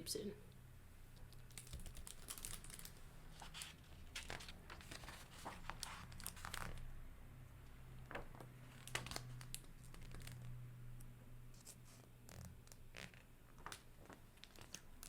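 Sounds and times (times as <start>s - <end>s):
book pages rustling and turning: 1.5s - 6.9s, 8.0s - 10.6s, 11.6s - 15.0s.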